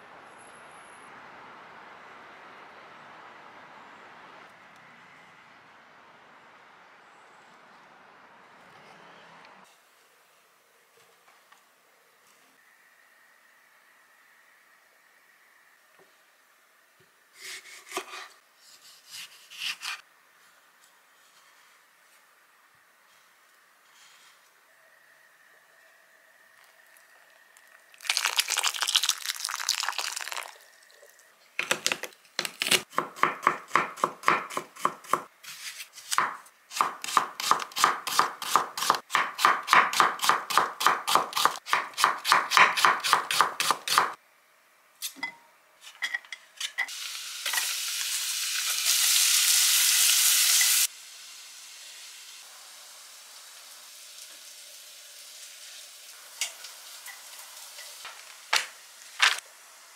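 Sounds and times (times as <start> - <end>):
knife chopping on cutting board: 31.8 - 44.1.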